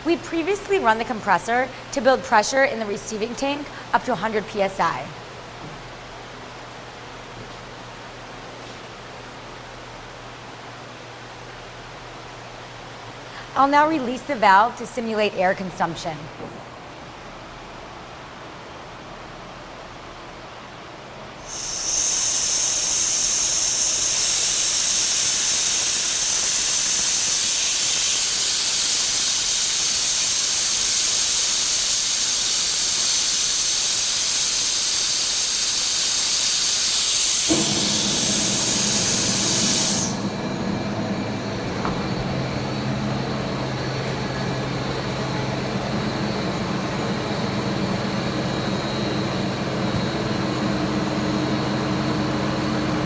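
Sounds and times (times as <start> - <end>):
compressed air hissing from valve: 21.4 - 40.3
air compressor running: 21.4 - 53.0.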